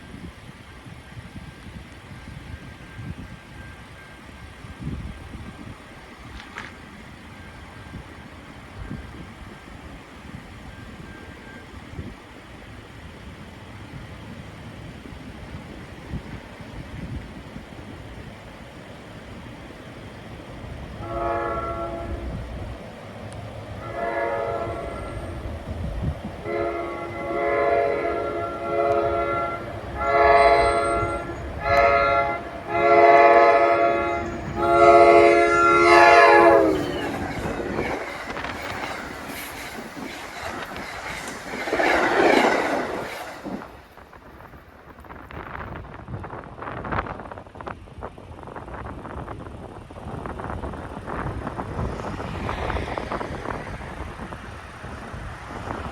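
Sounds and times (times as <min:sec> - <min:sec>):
train rushing and rattling past: 0:00.0 - 0:55.9
locomotive horn blasts: 0:21.0 - 0:22.4, 0:23.8 - 0:25.4, 0:26.4 - 0:38.0.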